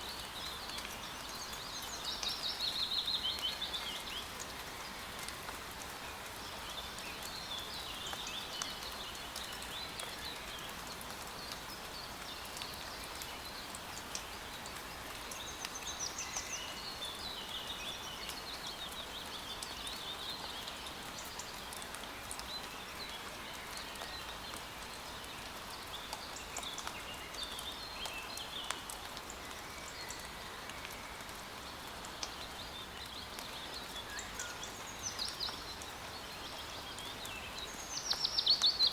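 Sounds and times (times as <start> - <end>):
rain pattering: 0.0 - 38.9
songbirds chirping and warbling: 22.3 - 38.9.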